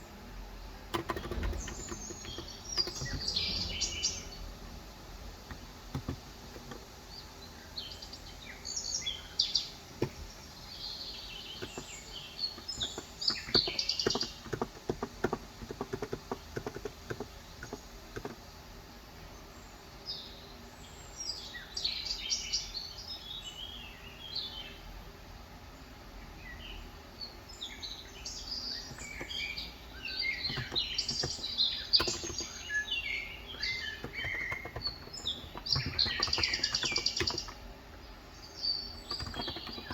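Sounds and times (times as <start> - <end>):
keyboard typing clicks: 0.9 - 4.3, 5.5 - 6.9, 11.5 - 18.4, 28.9 - 29.6, 30.2 - 32.8, 33.5 - 37.7, 39.0 - 39.9
birds chirping and singing: 0.9 - 4.6, 5.4 - 18.4, 26.4 - 39.9.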